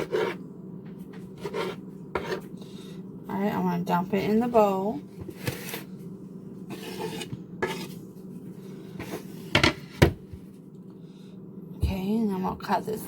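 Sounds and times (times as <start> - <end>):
scraping food off cutting board: 0.0 - 0.4, 1.2 - 2.5, 5.2 - 5.9, 6.7 - 8.0, 8.9 - 10.2.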